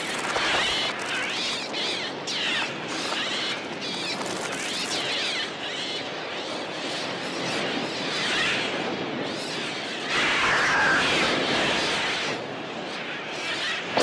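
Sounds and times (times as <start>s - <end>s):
birds screeching: 0.0s - 6.3s, 9.6s - 12.4s
steady rushing hiss: 0.0s - 6.6s.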